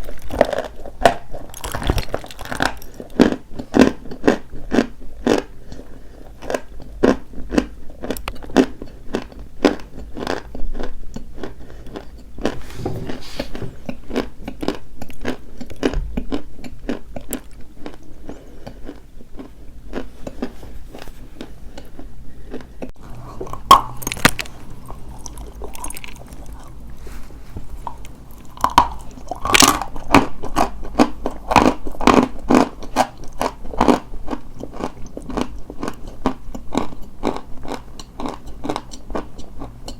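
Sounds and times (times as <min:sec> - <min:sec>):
chalk being crunched and chewed: 0:21.4 - 0:39.9.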